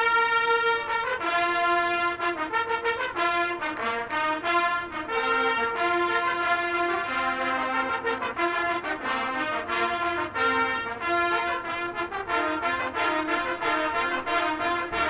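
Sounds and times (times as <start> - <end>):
marching band brass chords: 0.0 - 15.0.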